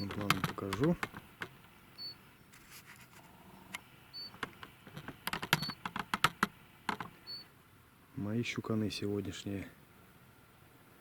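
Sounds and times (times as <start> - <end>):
handling clicks and rustles: 0.0 - 1.8, 4.3 - 7.2.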